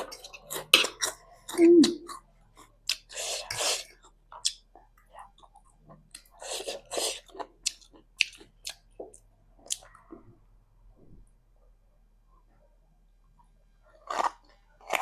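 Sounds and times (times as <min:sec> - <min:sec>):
person chewing noodles: 0:00.0 - 0:10.0, 0:13.9 - 0:15.0.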